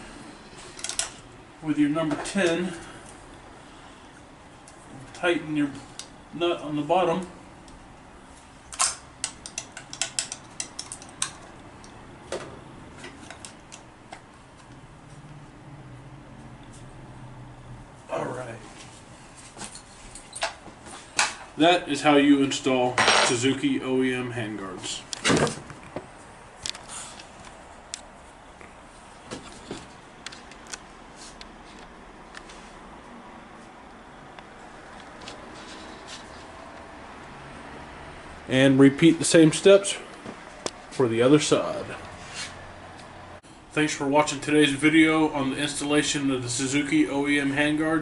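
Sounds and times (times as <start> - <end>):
wrench clicking on nut: 8.8 - 11.4.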